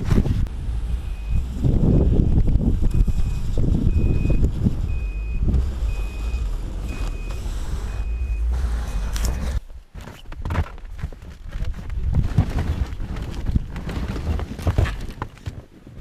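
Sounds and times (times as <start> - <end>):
snowmobile engine rumbling: 0.0 - 9.9
reverse alarm beeping: 1.0 - 9.6.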